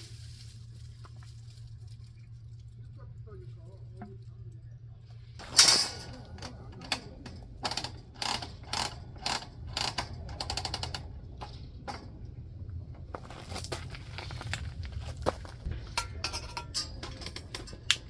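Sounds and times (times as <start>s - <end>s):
mechanical clicks and rattles: 5.4s - 12.4s, 15.6s - 18.0s.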